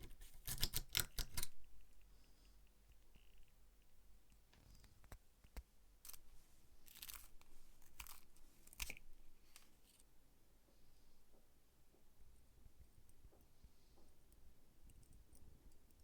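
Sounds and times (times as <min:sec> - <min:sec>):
scraping small metal parts: 0:06.8 - 0:09.0.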